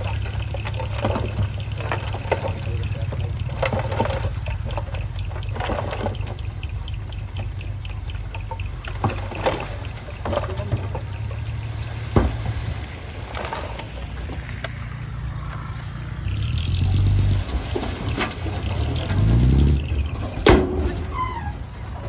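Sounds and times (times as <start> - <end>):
heavy diesel engine revving: 0.0 - 22.0
sharp metal clanks: 20.3 - 21.4.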